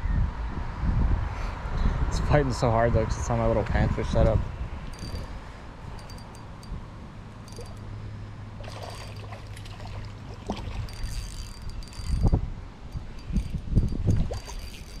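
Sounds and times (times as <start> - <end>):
river water flowing: 4.8 - 15.0
fishing reel clicks: 4.9 - 6.8, 7.4 - 7.9, 10.5 - 15.0
water splashing: 8.6 - 12.2, 14.0 - 15.0.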